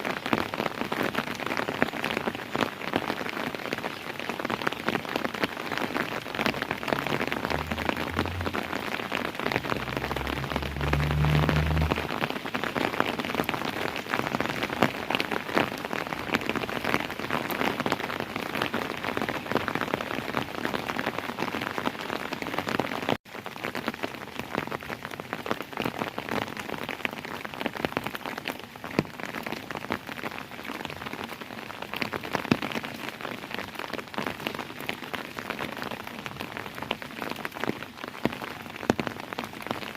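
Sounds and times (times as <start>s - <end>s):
rain on hard surface: 0.0s - 39.9s
low rumble: 6.5s - 12.3s.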